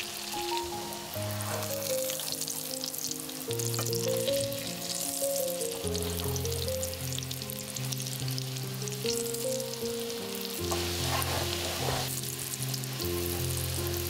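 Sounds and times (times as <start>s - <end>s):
hot oil sizzling and crackling: 0.0s - 14.0s
soft background music: 0.0s - 14.0s.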